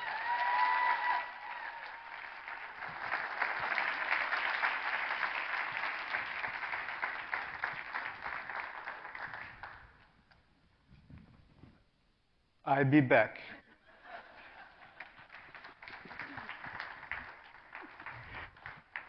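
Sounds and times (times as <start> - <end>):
audience applauding: 0.0 - 10.1, 14.3 - 19.0.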